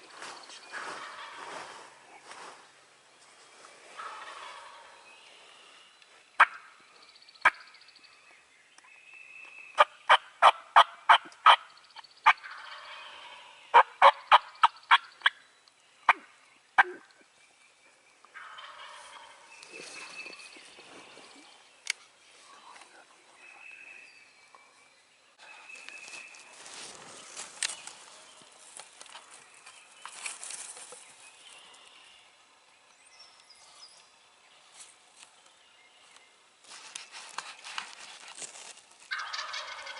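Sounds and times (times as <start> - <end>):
turkey gobbling: 1.0 - 1.4, 4.0 - 5.0, 6.4 - 6.6, 9.8 - 11.6, 12.2 - 15.4, 18.4 - 19.5, 39.1 - 39.9
turkey yelping: 39.1 - 39.9.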